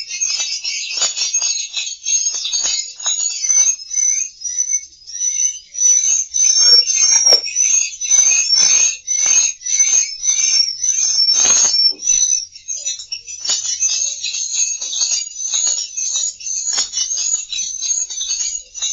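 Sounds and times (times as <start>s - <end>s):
recorded swiftlet chirps: 5.9s - 7.7s.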